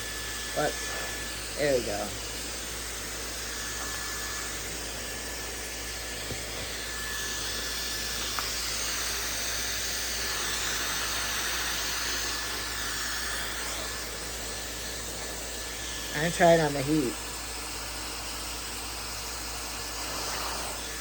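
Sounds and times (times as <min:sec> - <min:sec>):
hair dryer running: 0:00.0 - 0:21.0.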